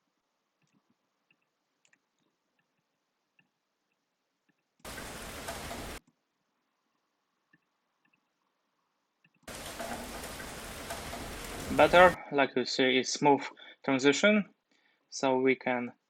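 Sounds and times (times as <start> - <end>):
rain recording playing: 0.2 - 12.2
computer mouse clicks: 0.6 - 4.9.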